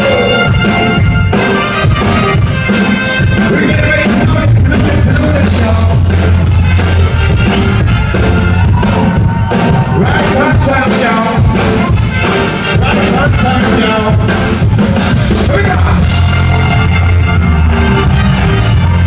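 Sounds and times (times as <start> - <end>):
person singing: 0.0 - 0.8, 3.3 - 6.4, 9.8 - 12.0
heavy bass: 0.0 - 19.0
live band music through speakers: 0.0 - 19.0
steady drum beat: 0.0 - 19.0.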